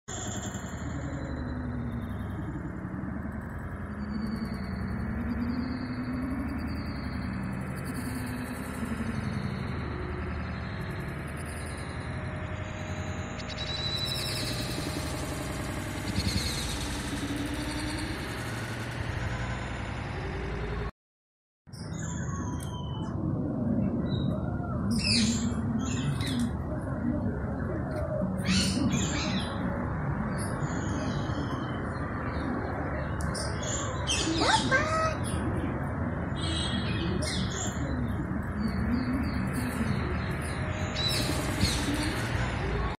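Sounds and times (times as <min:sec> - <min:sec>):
bird chirps: 0:00.1 - 0:19.7, 0:21.7 - 0:23.2, 0:27.9 - 0:42.6
steady background hum: 0:00.1 - 0:20.9, 0:21.7 - 0:42.9.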